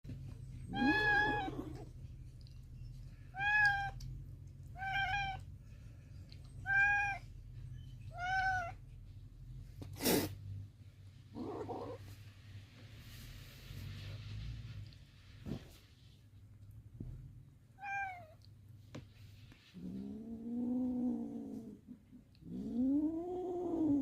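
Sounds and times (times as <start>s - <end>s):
kitten meowing: 0.7s - 1.6s.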